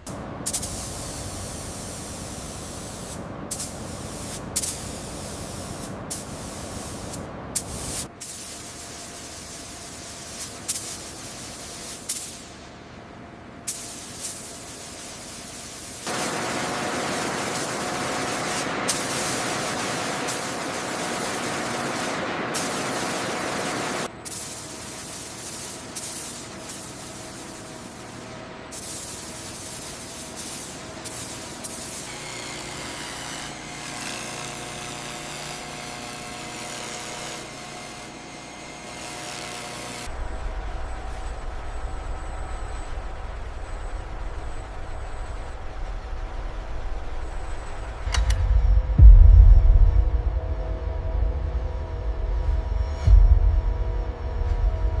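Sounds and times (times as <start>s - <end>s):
spraying hiss: 0.1s - 12.6s, 13.7s - 32.0s.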